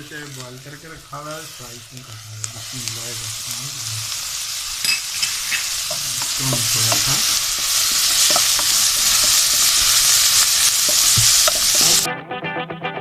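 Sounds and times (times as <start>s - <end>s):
food sizzling in hot oil: 0.0s - 12.1s
guitar music: 6.3s - 13.0s.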